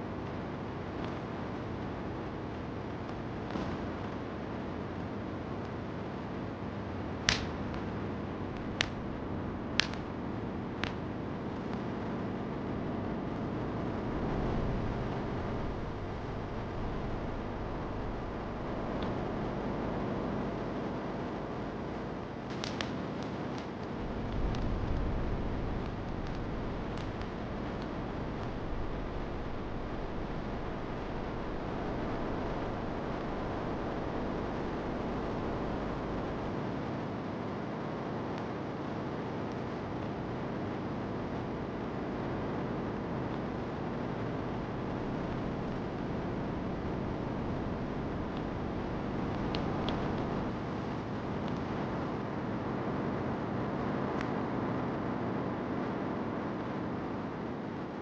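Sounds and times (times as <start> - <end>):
steady rain hiss: 0.0 - 55.2
fire crackling and popping: 0.2 - 53.0
rain hiss: 24.0 - 36.5.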